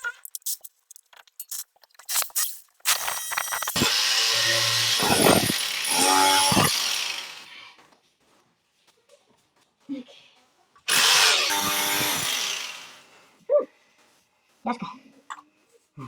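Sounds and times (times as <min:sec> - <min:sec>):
angle grinder cutting steel: 0:02.9 - 0:07.8, 0:10.9 - 0:13.2.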